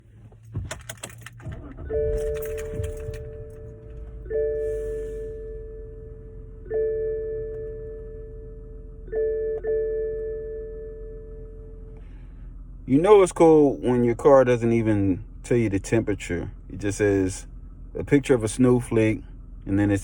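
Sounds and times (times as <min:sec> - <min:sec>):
car dashboard warning chime: 0:01.6 - 0:12.0.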